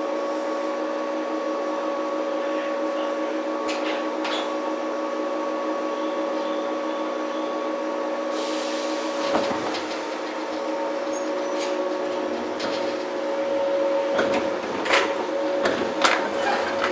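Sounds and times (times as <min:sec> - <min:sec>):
train equipment hum: 0:00.0 - 0:16.9
air hiss: 0:08.3 - 0:09.2.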